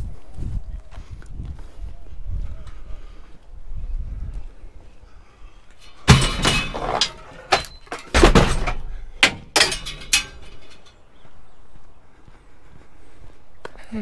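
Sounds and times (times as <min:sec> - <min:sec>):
hard junk objects clattering: 0:05.8 - 0:11.0.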